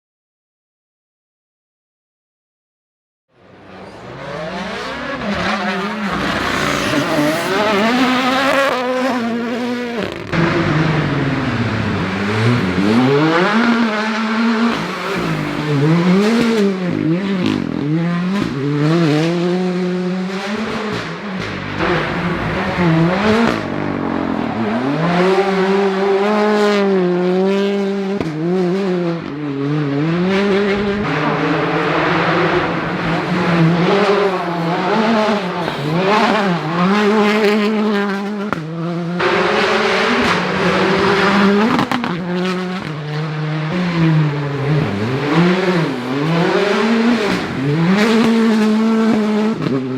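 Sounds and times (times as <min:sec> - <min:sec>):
rally car engines revving: 0:03.4 - 0:49.9.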